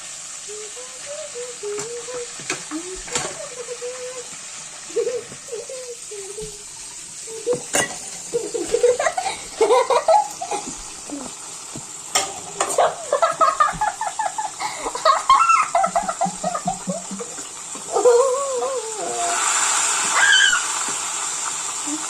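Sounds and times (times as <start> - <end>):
water running: 0.0 - 22.0
child vocalising: 0.4 - 4.3, 4.9 - 9.5, 11.0 - 11.4, 17.9 - 19.5, 20.1 - 20.7
dishes clinking in sink: 7.5 - 9.1, 12.1 - 12.9.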